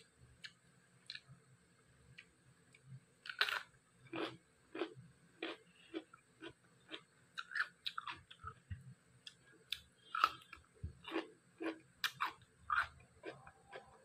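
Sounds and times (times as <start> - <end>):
person chewing food: 3.3 - 8.6, 9.2 - 14.0.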